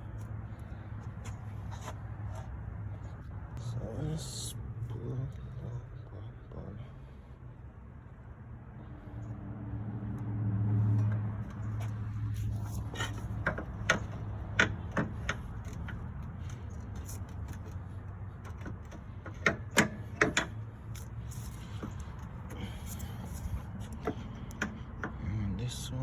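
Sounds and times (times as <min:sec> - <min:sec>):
metal tools clanking: 0:11.1 - 0:25.2.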